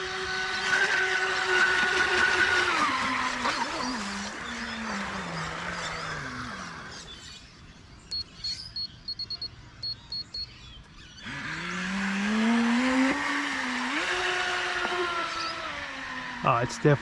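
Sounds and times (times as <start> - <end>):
electric motor whine: 0.0 - 7.5, 11.0 - 17.0
short high electronic beeps: 8.1 - 10.5.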